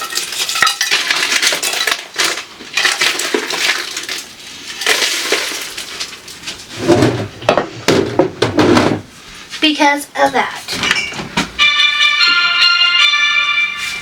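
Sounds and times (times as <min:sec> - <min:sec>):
plastic packaging crinkling: 0:00.0 - 0:06.5
containers clinking: 0:00.0 - 0:06.7.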